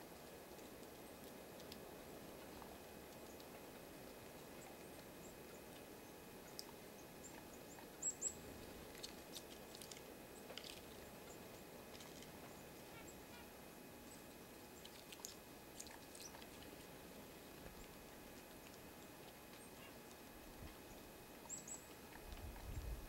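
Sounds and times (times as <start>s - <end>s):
small birds chirping: 4.5s - 16.7s, 20.8s - 22.8s.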